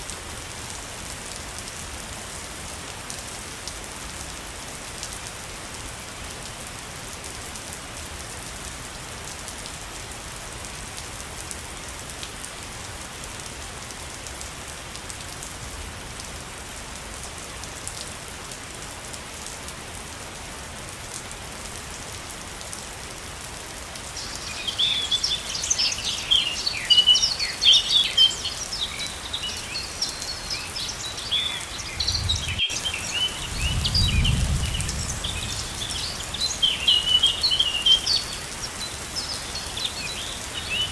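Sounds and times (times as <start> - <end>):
waterfall rushing: 24.1 - 40.9
birds chirping: 24.2 - 40.9.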